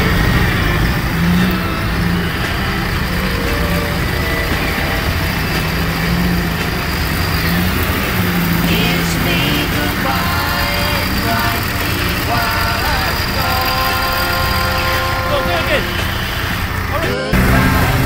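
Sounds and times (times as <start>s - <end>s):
off-road engine revving: 0.0s - 18.0s.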